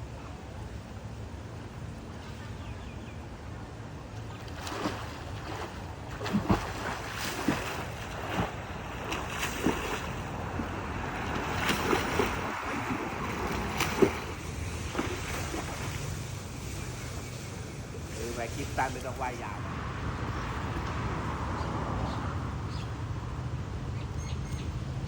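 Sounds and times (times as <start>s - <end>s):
swimmer splashing in pool: 4.4s - 19.4s.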